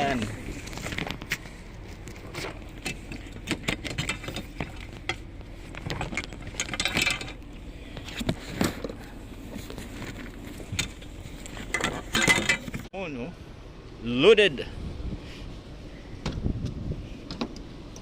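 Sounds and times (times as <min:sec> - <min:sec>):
scraping rustle: 0:00.0 - 0:12.9
objects being handled: 0:00.1 - 0:12.9.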